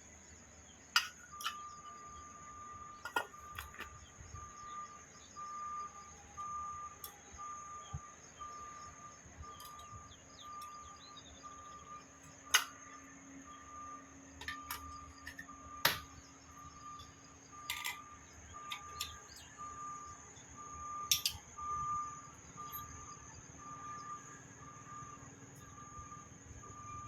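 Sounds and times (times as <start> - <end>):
short electronic beeps: 1.3 - 27.0
sharp metallic clinks: 22.6 - 23.0.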